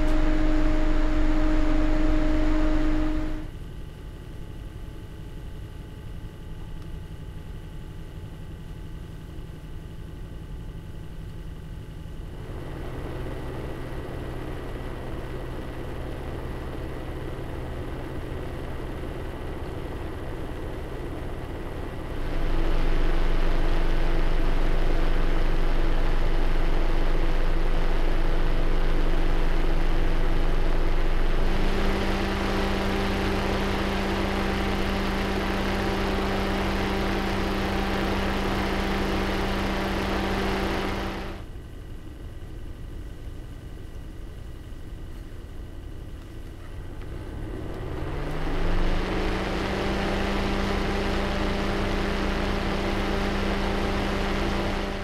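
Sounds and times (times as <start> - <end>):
computer cooler fans whooshing: 0.0 - 3.7, 12.1 - 41.5, 46.6 - 55.0.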